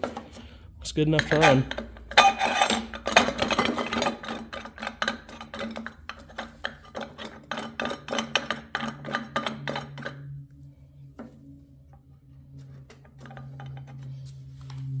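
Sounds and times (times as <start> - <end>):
metal parts and tools clinking: 1.1 - 10.3.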